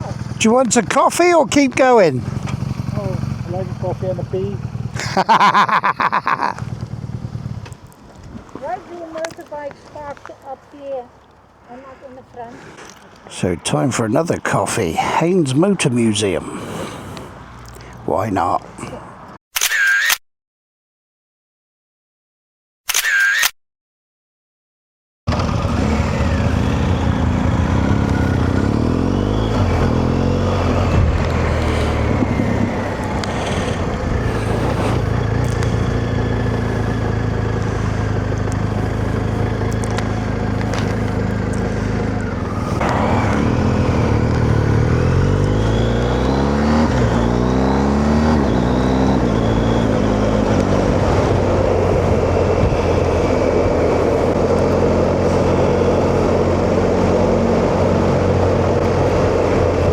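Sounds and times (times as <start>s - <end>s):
motorcycle engine revving through gears: 0.0s - 0.7s, 1.6s - 9.5s, 25.3s - 59.9s
wind noise in helmet: 25.8s - 45.4s, 48.4s - 59.9s.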